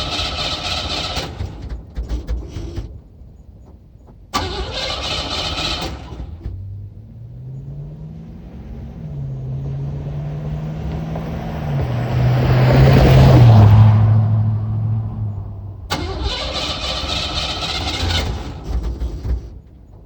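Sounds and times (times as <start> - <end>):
starter cranking: 0.0 - 3.0, 4.4 - 6.6, 15.9 - 19.7
car engine running: 0.0 - 9.5.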